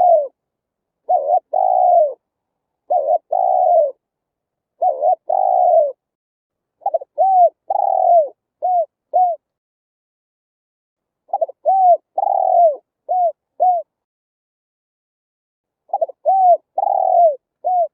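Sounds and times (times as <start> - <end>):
dove cooing: 0.0 - 0.4, 1.0 - 2.2, 2.8 - 4.0, 4.8 - 6.0, 6.8 - 9.5, 11.3 - 14.0, 15.9 - 17.9.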